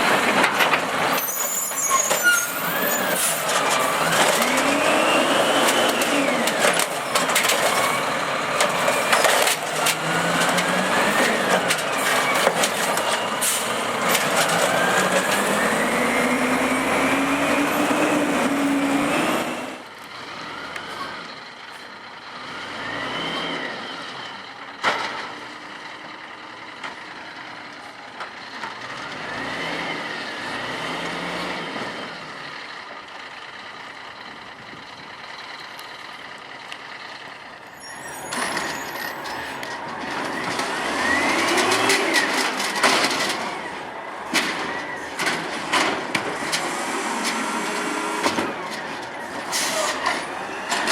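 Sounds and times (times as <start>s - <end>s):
garbage truck engine revving: 1.9s - 21.2s, 28.9s - 32.3s, 38.0s - 50.9s
trash cart clanking: 37.7s - 50.9s.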